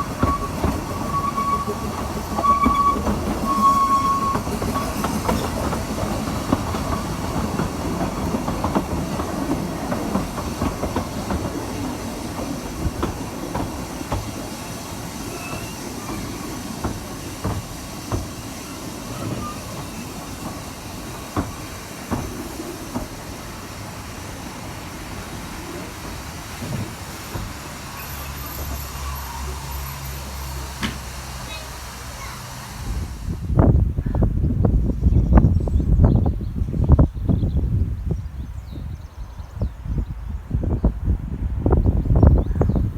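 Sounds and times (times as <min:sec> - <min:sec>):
train wheels clicking over rail joints: 0:00.0 - 0:33.6
train rumble: 0:00.0 - 0:42.9.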